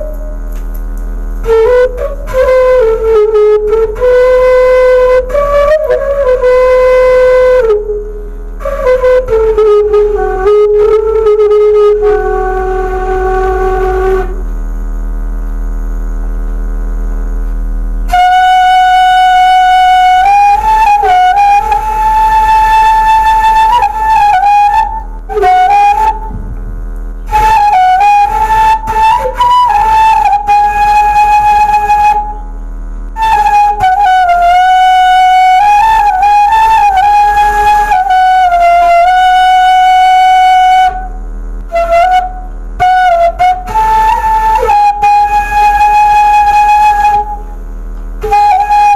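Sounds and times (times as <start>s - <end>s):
bamboo flute slow melody: 0.0s - 14.9s, 18.0s - 48.9s
low electrical hum: 0.0s - 48.9s.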